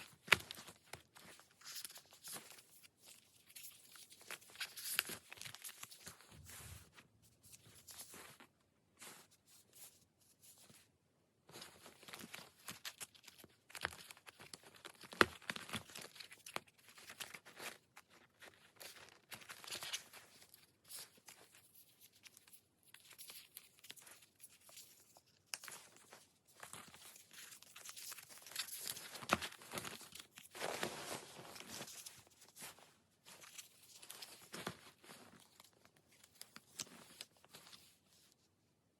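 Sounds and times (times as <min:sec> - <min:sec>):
sticker sheets rustling and crinkling: 0:00.0 - 0:38.6.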